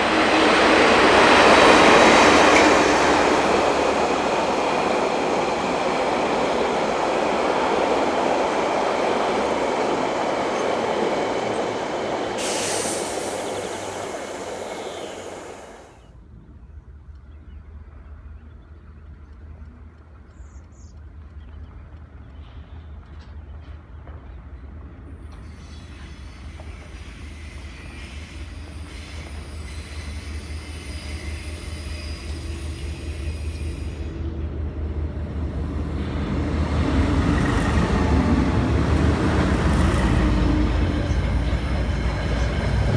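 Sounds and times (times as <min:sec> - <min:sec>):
approaching train rumble: 0:00.0 - 0:16.1, 0:25.0 - 0:42.9
train wheels on rail: 0:00.0 - 0:16.1, 0:21.9 - 0:42.9.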